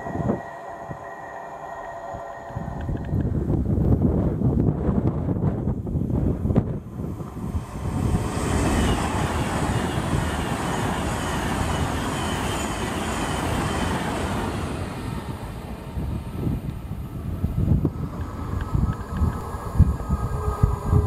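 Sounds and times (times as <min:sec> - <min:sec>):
faint high whine: 0:00.0 - 0:03.8
train passing at speed: 0:00.0 - 0:21.0.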